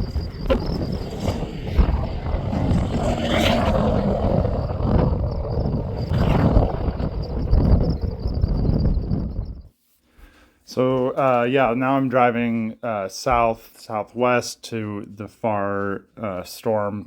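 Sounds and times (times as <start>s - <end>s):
wind rumbling on microphone: 0.0s - 9.7s.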